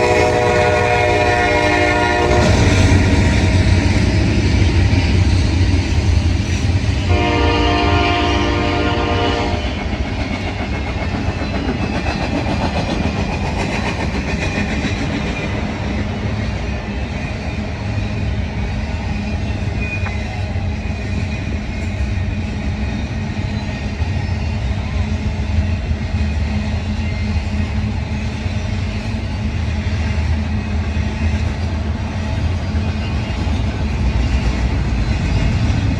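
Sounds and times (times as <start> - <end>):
train horn chord: 0.0 - 3.4, 7.1 - 9.6
train rumbling on rails: 0.0 - 35.9.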